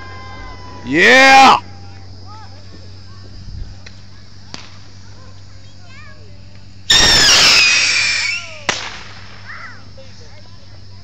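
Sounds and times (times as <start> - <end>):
faint pop: 3.8 - 4.8
firework bang: 4.4 - 5.0, 6.9 - 9.7
firework whistling: 6.8 - 9.9.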